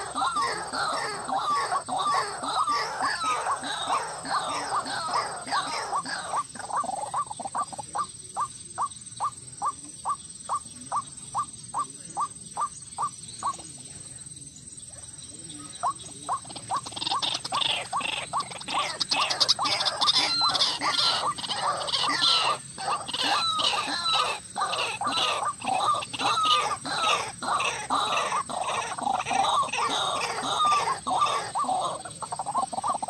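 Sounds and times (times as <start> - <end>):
waterhen calling: 0.0 - 13.7, 15.8 - 33.0.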